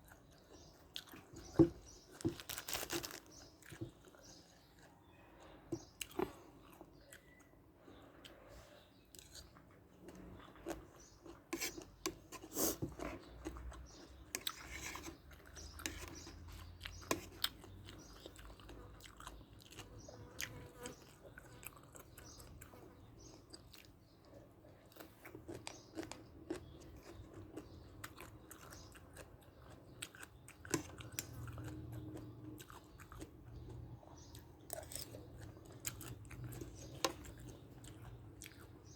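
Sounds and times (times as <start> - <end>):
person chewing: 0.0 - 8.4, 9.1 - 38.9
crisp crunches: 2.1 - 3.4.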